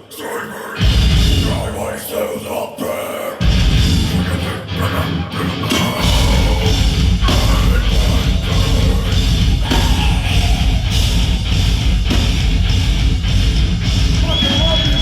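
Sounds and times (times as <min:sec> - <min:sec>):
distorted guitars: 0:00.0 - 0:15.0
bass guitar: 0:00.8 - 0:01.8, 0:03.4 - 0:15.0
pounding drums: 0:00.8 - 0:01.8, 0:03.4 - 0:04.3, 0:05.7 - 0:15.0
shouted vocals: 0:04.2 - 0:11.0.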